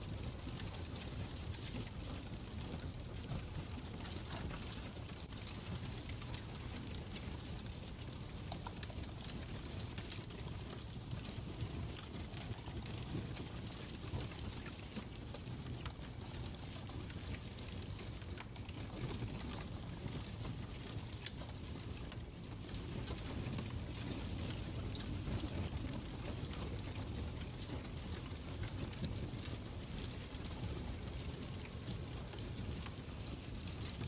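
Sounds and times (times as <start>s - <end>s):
fireplace crackling: 0.1s - 34.0s.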